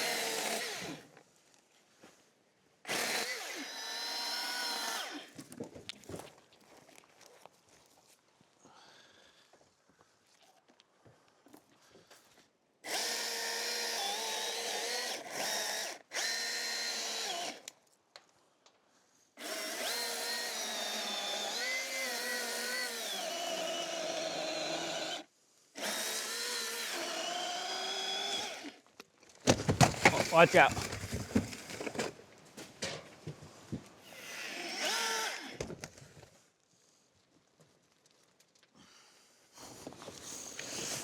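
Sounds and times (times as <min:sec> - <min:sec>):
chainsaw cutting wood: 0:00.0 - 0:01.1, 0:02.9 - 0:05.4, 0:12.8 - 0:17.7, 0:19.4 - 0:28.8, 0:29.5 - 0:32.2, 0:34.0 - 0:36.0.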